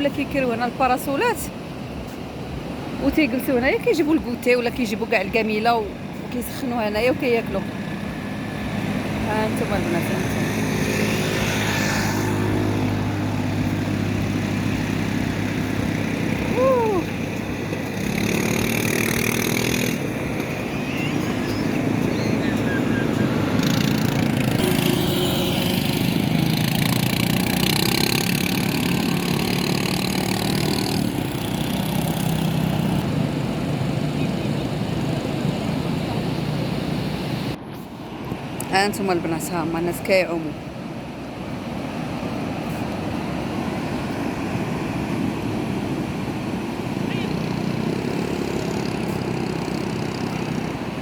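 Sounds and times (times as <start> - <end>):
small engine running: 8.0 - 34.2, 47.2 - 50.9.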